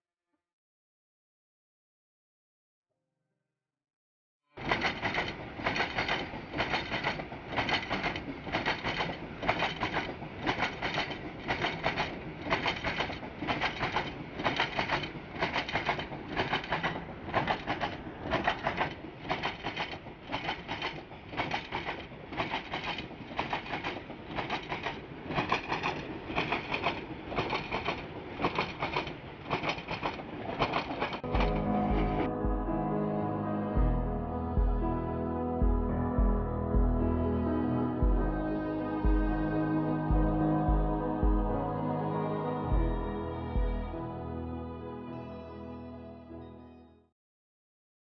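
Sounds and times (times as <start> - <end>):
train wheels clattering: 4.6 - 32.3.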